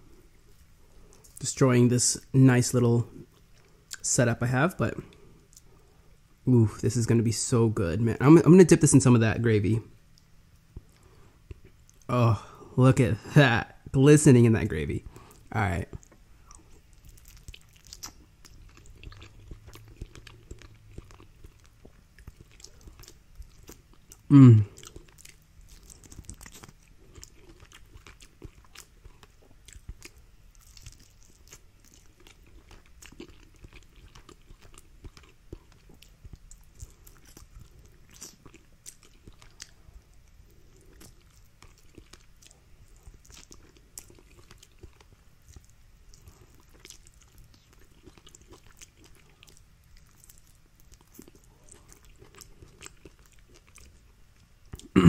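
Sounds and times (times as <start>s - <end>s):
faint chewing: 4.9s - 6.2s, 10.1s - 12.1s, 15.0s - 55.0s.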